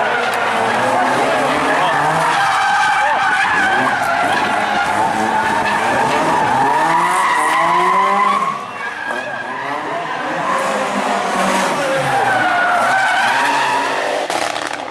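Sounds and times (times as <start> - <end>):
rally car engine revving: 0.0 - 14.9
tyre and road noise: 0.0 - 14.9.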